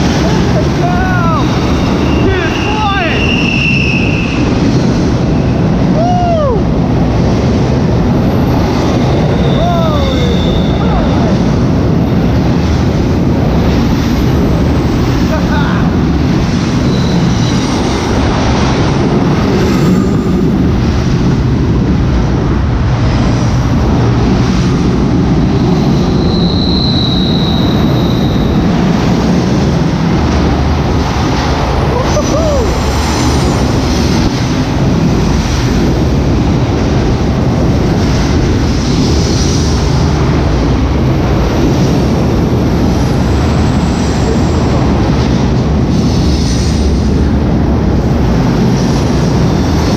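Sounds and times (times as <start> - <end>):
high wheel squeal: 0.0 - 5.9, 8.3 - 11.6, 16.6 - 18.4, 25.5 - 29.0
train wheels rumbling on rail: 0.0 - 49.9.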